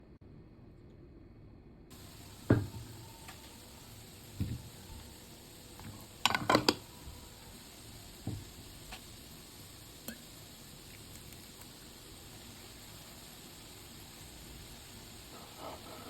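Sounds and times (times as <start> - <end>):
faint steady hiss: 0.0 - 16.0
cookware knocking and clinking: 6.2 - 6.9.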